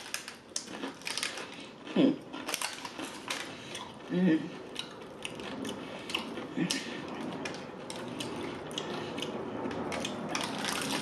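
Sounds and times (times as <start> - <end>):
chewing crispy fried chicken: 0.0 - 11.0.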